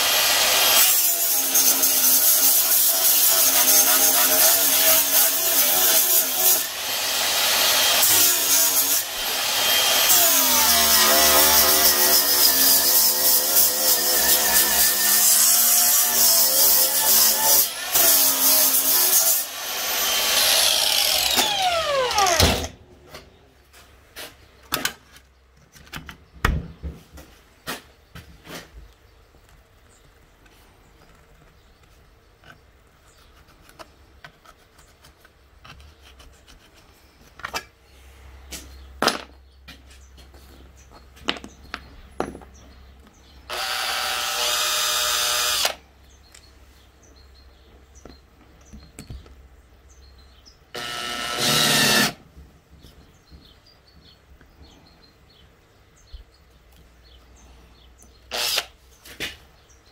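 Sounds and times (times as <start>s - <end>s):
angle grinder on metal: 0.0s - 22.7s, 43.5s - 45.8s, 50.8s - 52.2s, 58.3s - 58.7s
cordless drill driving a screw: 0.0s - 22.7s, 43.5s - 45.8s, 50.8s - 52.2s, 58.3s - 58.7s
clicks and knocks of handling parts: 24.6s - 26.5s, 33.4s - 37.8s.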